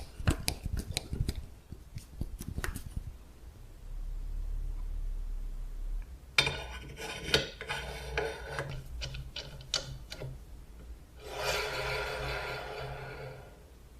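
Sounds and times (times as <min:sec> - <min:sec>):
scraping on metal: 0:06.4 - 0:10.3, 0:11.2 - 0:13.6
rasping rub on metal: 0:11.2 - 0:13.6.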